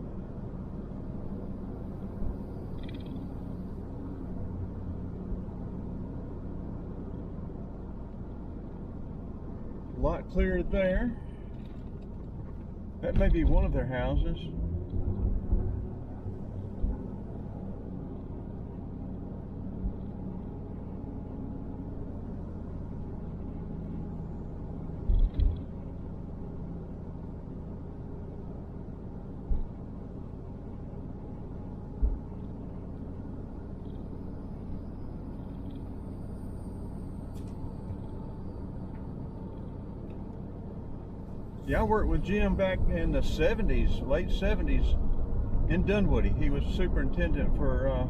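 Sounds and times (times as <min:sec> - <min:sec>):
car engine and road rumble: 0:00.0 - 0:48.0.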